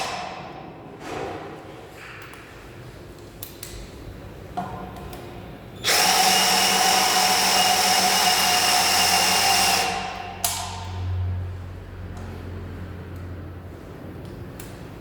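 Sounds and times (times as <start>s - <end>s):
cordless drill whining: 5.8s - 10.1s.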